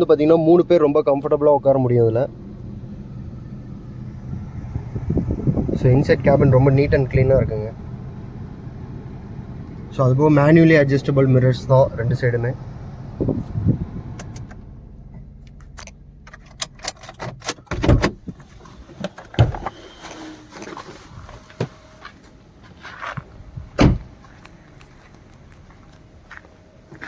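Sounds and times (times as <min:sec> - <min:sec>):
car door clicks and knocks: 0:15.7 - 0:18.4, 0:23.8 - 0:24.1.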